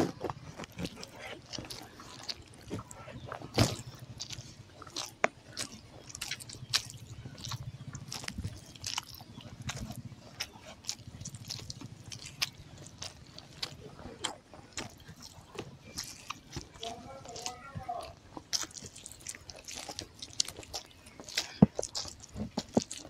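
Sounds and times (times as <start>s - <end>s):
fingers squishing food: 0.0s - 23.0s
wet chewing with mouth clicks: 0.0s - 23.0s.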